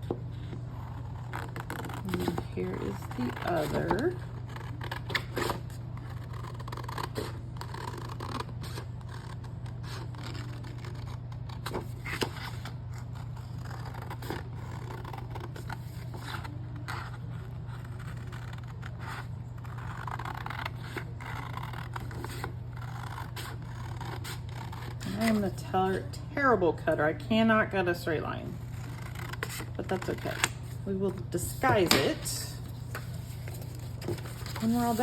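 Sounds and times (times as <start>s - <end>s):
steady low hum: 0.0s - 35.0s
paper rustling and scraping: 0.4s - 25.6s, 28.7s - 35.0s
scissors snipping paper: 1.4s - 12.6s.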